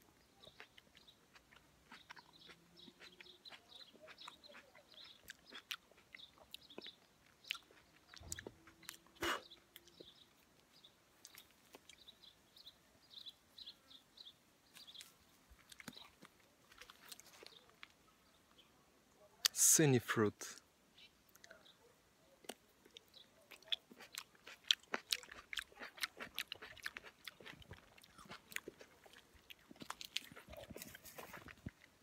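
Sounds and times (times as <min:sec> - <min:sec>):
person chewing plum: 0:00.3 - 0:10.6, 0:15.0 - 0:18.0, 0:22.4 - 0:32.0.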